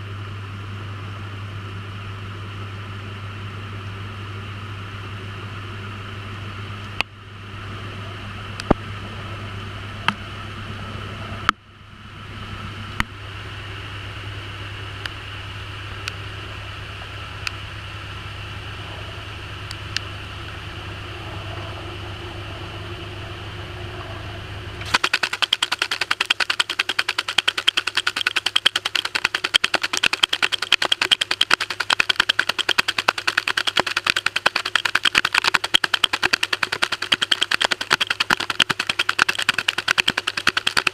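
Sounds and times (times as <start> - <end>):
washing machine hum: 20.2 - 40.9
rapid rattling clicks: 24.9 - 40.9
sharp clicks: 24.9 - 40.9.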